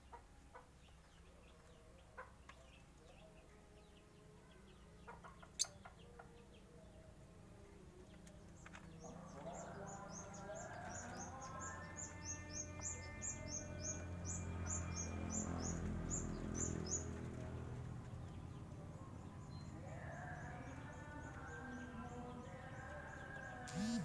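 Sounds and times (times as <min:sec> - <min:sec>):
birds chirping rapidly: 0:08.4 - 0:24.0.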